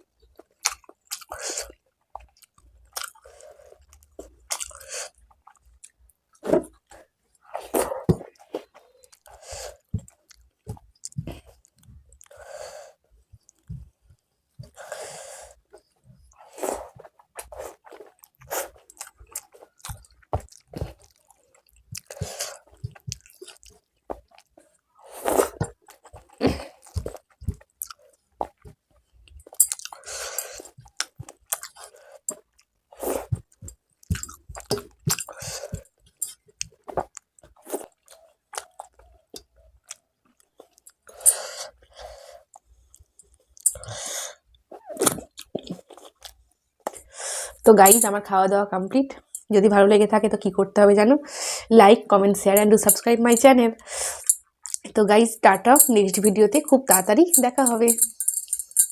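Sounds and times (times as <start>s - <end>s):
close-miked chewing: 0.2s - 15.0s, 15.6s - 47.2s, 52.6s - 54.9s
wet mouth clicks and smacks: 0.6s - 3.2s, 3.9s - 6.0s, 18.1s - 24.5s, 29.4s - 32.7s, 33.3s - 41.4s, 54.2s - 54.9s.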